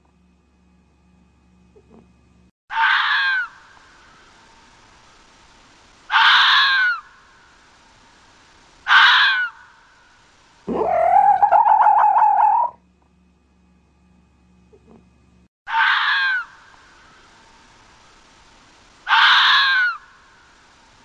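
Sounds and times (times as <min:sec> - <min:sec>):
fox calling: 0:06.1 - 0:07.1, 0:08.9 - 0:09.7, 0:10.7 - 0:12.8, 0:19.0 - 0:20.1.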